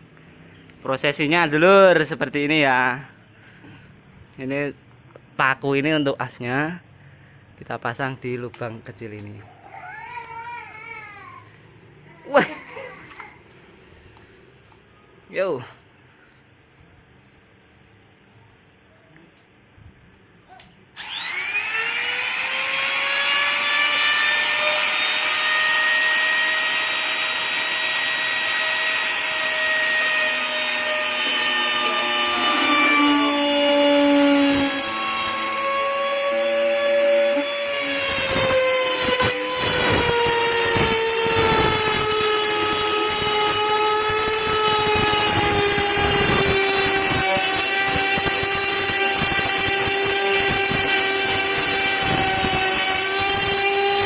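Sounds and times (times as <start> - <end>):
router bit grinding wood: 21.0 - 54.0
router motor whining: 21.0 - 54.0.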